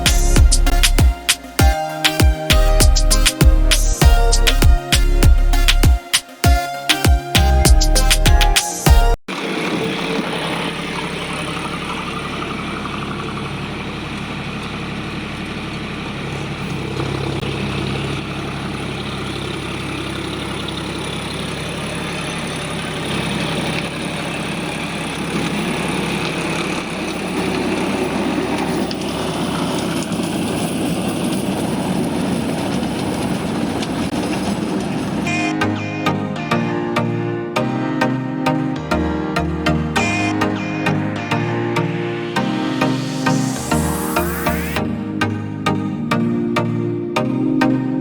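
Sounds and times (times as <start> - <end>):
engine running under load: 9.3 - 35.8, 38.9 - 45.8.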